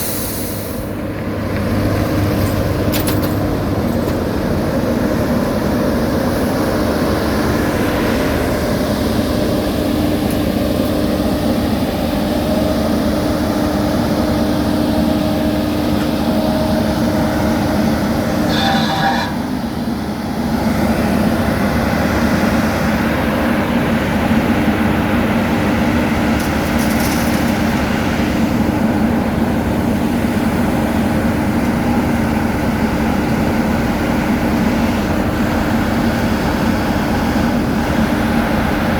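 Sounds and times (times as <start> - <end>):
diesel paving machinery drone: 0.0 - 38.9
high-pitched squeal: 18.4 - 19.8.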